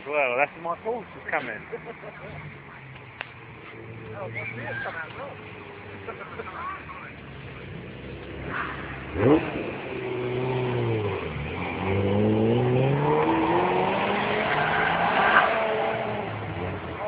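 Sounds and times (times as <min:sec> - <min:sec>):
car engine revving hard: 0:07.4 - 0:17.0.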